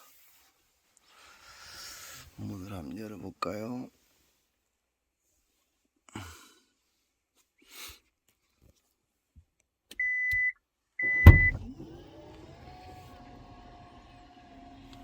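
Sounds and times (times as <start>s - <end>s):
soft rustles of person moving: 0.0s - 2.4s, 3.5s - 6.0s, 6.8s - 9.3s
tailgate warning beeps: 10.0s - 11.7s
heavy latch clunk: 11.1s - 11.6s.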